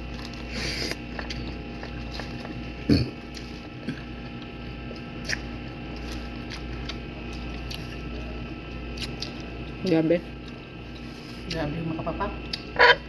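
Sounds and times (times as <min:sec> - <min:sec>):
person chewing food: 0:00.0 - 0:09.8
steady background hum: 0:00.0 - 0:13.0.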